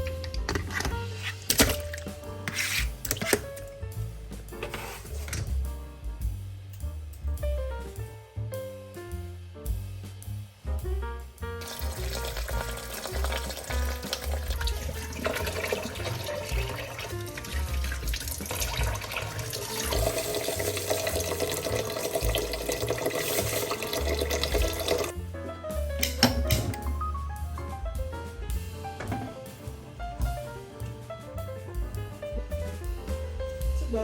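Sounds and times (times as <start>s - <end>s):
background music: 0.0s - 34.0s
tap water running into sink: 11.6s - 25.2s.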